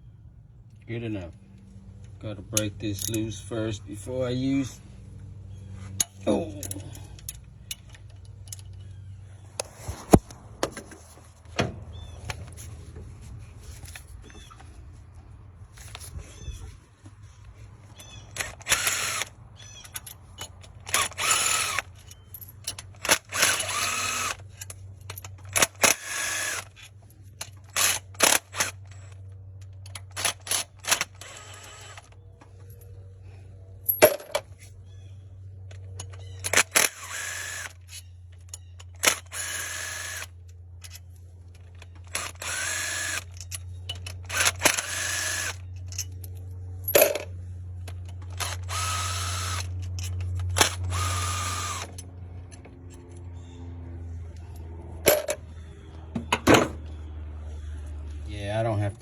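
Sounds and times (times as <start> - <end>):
power tool whining bursts: 18.0 - 19.4, 20.9 - 21.9, 23.0 - 24.5, 25.6 - 26.8, 30.2 - 32.1, 36.4 - 37.9, 39.0 - 40.3, 42.1 - 43.4, 44.2 - 45.7, 48.3 - 52.0.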